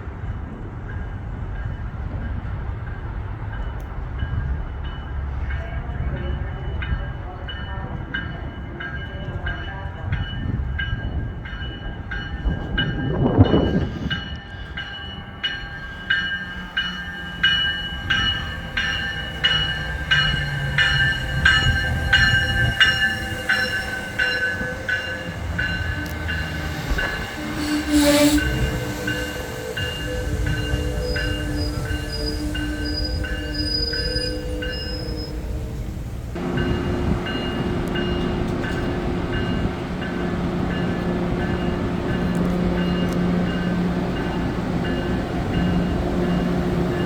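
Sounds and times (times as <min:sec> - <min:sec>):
train rumbling: 0:00.0 - 0:47.0
high-pitched squeal: 0:18.1 - 0:35.8.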